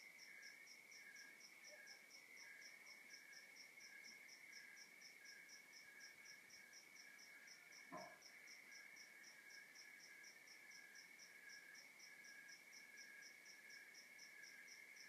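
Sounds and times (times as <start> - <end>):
crickets and night insects chirping: 0.0 - 15.0
soft knock: 7.9 - 8.2.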